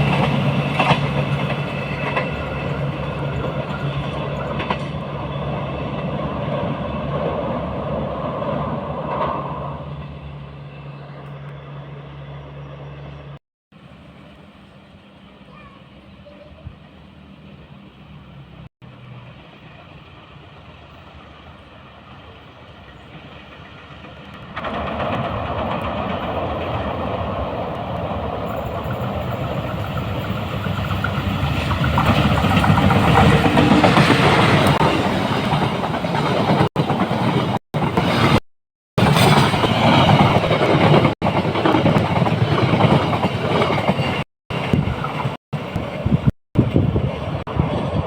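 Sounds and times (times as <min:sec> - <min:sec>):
train wheels rattling over rails: 0:00.0 - 0:09.8, 0:23.3 - 0:38.4, 0:39.0 - 0:48.0.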